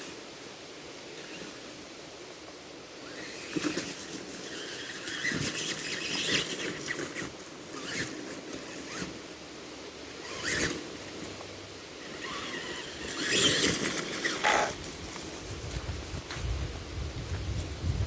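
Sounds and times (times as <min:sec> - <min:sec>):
rc truck motor whine: 0:03.0 - 0:09.3, 0:10.1 - 0:11.3, 0:12.0 - 0:14.9.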